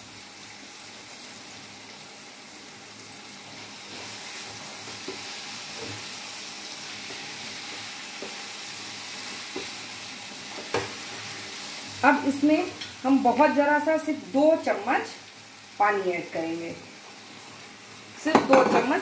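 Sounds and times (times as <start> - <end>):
food sizzling in a pan: 0.0 - 19.0
spatula knocking and scraping pan: 10.6 - 11.2, 18.3 - 19.0.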